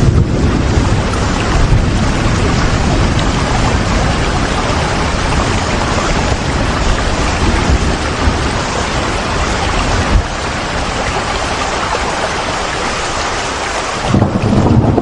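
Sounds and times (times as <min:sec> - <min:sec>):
low rumble: 0:00.0 - 0:11.6, 0:14.1 - 0:15.0
steady rain hiss: 0:00.0 - 0:15.0.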